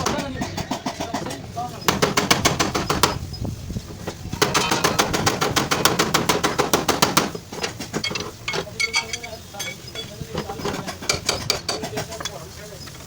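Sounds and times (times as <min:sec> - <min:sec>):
hammer tapping sheet metal: 0:04.4 - 0:07.4.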